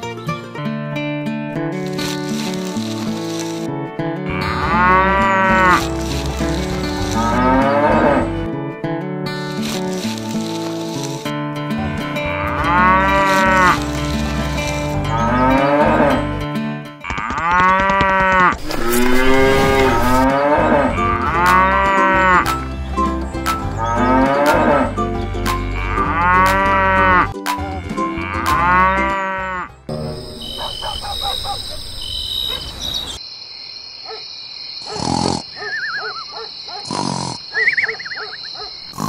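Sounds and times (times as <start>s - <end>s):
cows mooing: 4.3s - 8.4s, 11.9s - 16.4s, 17.0s - 22.5s, 23.8s - 24.9s, 25.7s - 29.8s.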